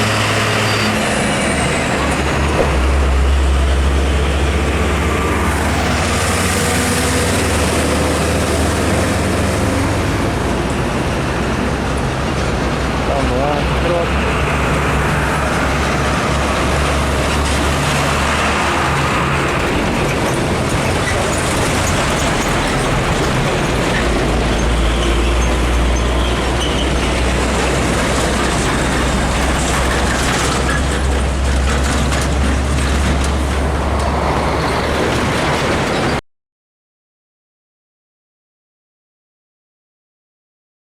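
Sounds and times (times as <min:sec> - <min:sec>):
truck engines rumbling: 0:00.0 - 0:36.2
tyre and road noise: 0:00.0 - 0:36.2.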